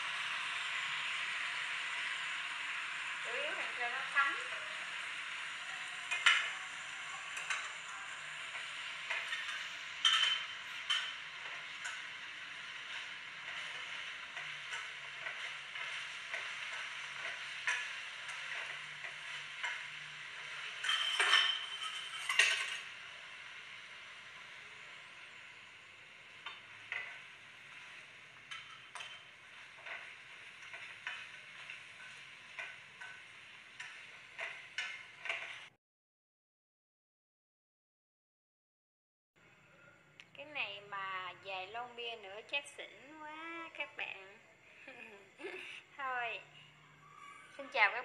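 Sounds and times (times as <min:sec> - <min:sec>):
chicken wings sizzling in sauce: 0:00.0 - 0:35.7
utensil scraping a pan: 0:07.3 - 0:23.4, 0:26.4 - 0:35.7.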